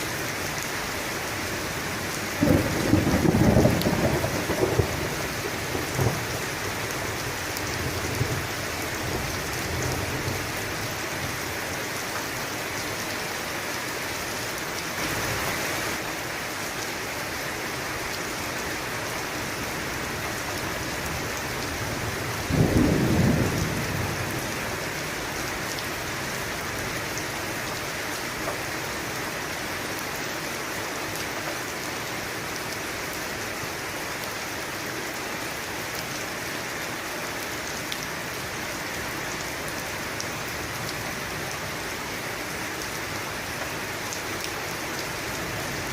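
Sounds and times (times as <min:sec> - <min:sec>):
steady rain: 0:00.0 - 0:45.9
loud thunderclap: 0:02.4 - 0:05.2, 0:22.5 - 0:24.2
low rumble of thunder: 0:02.4 - 0:06.4, 0:22.2 - 0:24.8.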